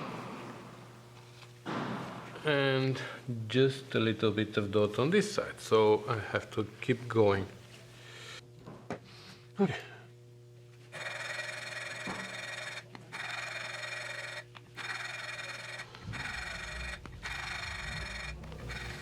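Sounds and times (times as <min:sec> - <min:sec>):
gritty valve grinding: 0:10.9 - 0:19.0.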